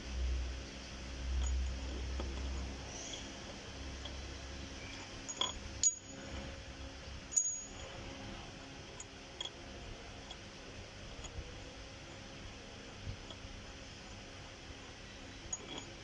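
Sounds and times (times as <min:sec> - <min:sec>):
low steady hum: 0:00.0 - 0:16.0
metal tool clinks and taps: 0:05.3 - 0:06.0.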